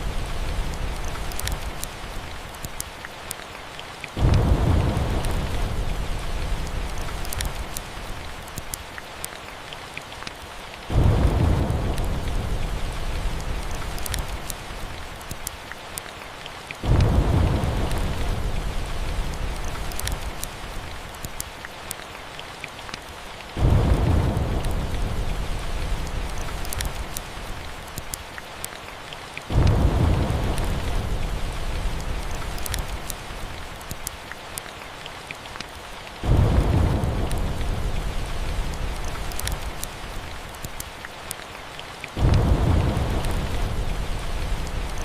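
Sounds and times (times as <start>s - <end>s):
steady rain: 0.0s - 45.0s
faint sharp crackles: 0.3s - 10.6s, 11.6s - 16.1s, 16.8s - 45.0s
thunder rumbling: 4.2s - 8.1s, 10.9s - 15.1s, 16.8s - 20.8s, 23.6s - 27.9s, 29.5s - 33.7s, 36.2s - 40.5s, 42.2s - 45.0s.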